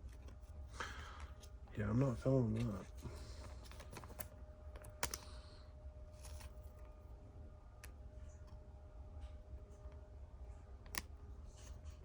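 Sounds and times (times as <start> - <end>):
card and plastic sleeve rustling: 0.0 - 5.4, 6.1 - 7.0.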